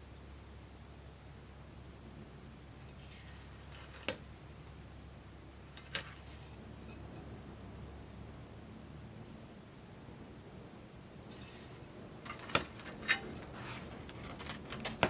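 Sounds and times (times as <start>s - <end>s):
faint low hum: 0.0s - 15.0s
clicks and clinks of hard objects: 2.9s - 4.2s, 11.3s - 15.0s.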